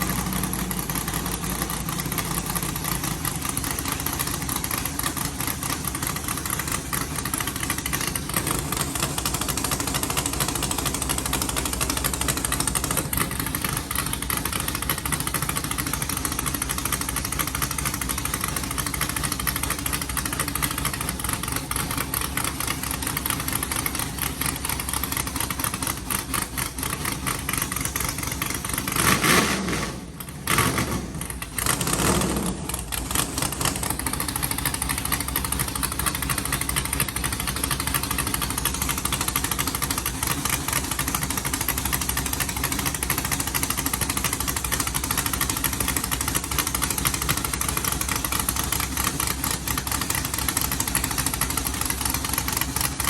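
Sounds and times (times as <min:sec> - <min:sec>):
engine idling: 0:00.0 - 0:53.0
engine revving: 0:28.8 - 0:34.2.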